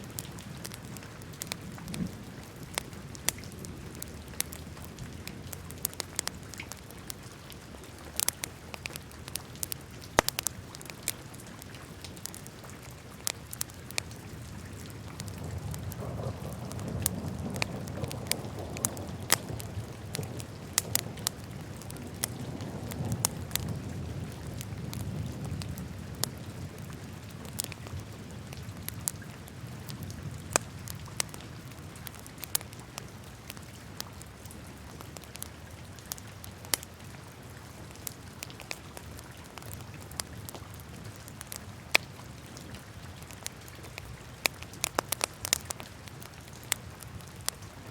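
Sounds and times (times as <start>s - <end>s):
low steady flame noise: 0.0s - 47.9s
wood fire crackling and popping: 0.0s - 47.9s.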